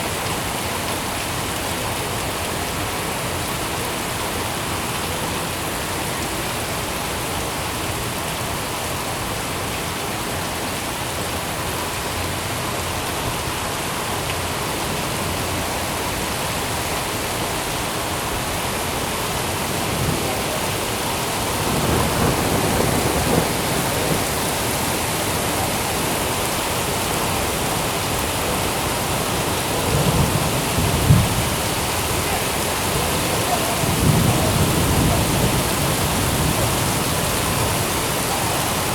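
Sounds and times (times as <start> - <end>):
heavy rain falling: 0.0 - 38.9
rolls of thunder: 33.4 - 37.0.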